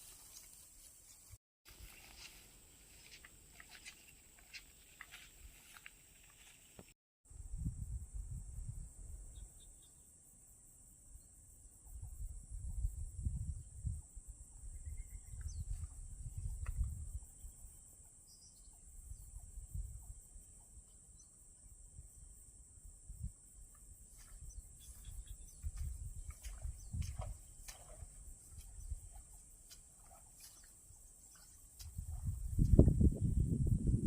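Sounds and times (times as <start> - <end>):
high-pitched insect chorus: 7.6 - 34.0.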